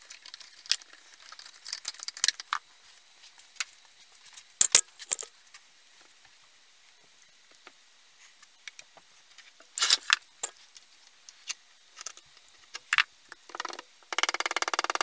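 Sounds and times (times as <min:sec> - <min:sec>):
fast run of clicks: 0:13.4 - 0:15.0.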